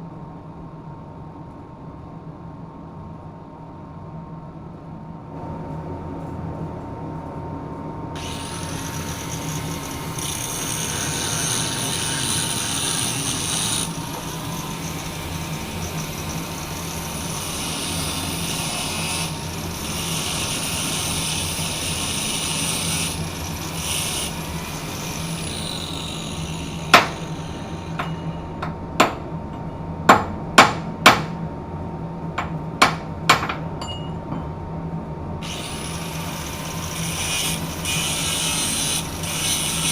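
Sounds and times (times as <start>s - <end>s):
machinery hum: 0.0s - 39.9s
angle grinder cutting: 8.2s - 28.5s, 35.4s - 39.9s
hammer blows: 24.9s - 31.4s.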